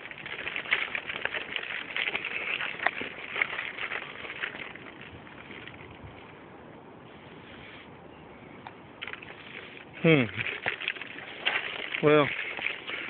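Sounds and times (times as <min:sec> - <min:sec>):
footsteps crunching dry leaves: 0:00.0 - 0:06.2, 0:09.0 - 0:13.0.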